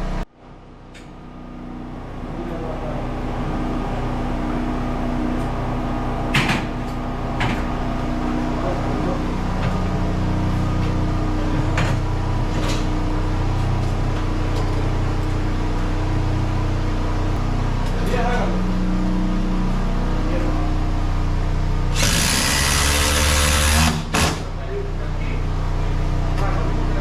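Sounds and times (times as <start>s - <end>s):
steady mechanical hum: 0.0s - 27.0s.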